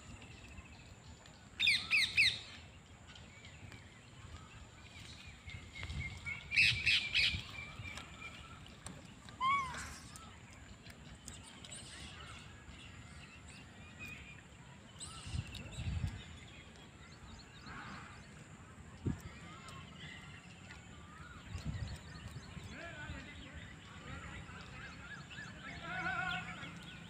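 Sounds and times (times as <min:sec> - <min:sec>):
birds chirping: 0:00.0 - 0:27.0
rising and falling bird call: 0:09.4 - 0:10.3.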